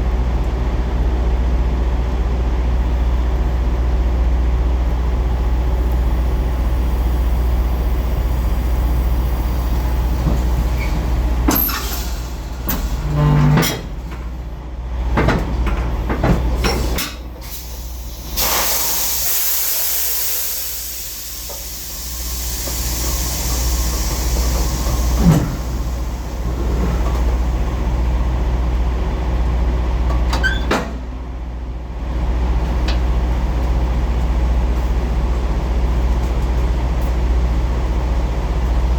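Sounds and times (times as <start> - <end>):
diesel truck engine rumbling: 0.0 - 38.9
air brakes hissing: 6.4 - 14.0, 16.5 - 27.7.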